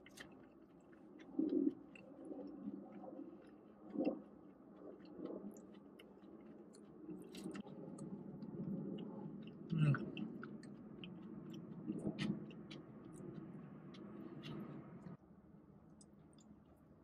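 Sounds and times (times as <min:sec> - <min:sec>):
person chewing food: 0:00.0 - 0:15.2
light mouth clicks: 0:09.0 - 0:15.2.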